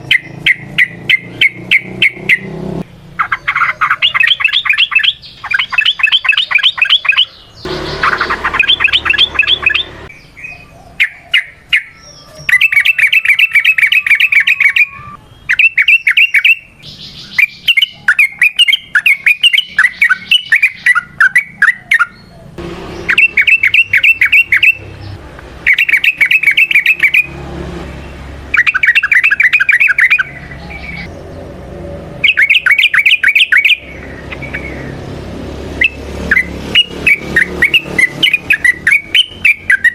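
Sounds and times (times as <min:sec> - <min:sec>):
bulbul bubbling song: 0:03.2 - 0:10.1, 0:23.0 - 0:25.0, 0:25.6 - 0:27.3, 0:28.5 - 0:31.1, 0:32.2 - 0:34.8, 0:35.8 - 0:39.9.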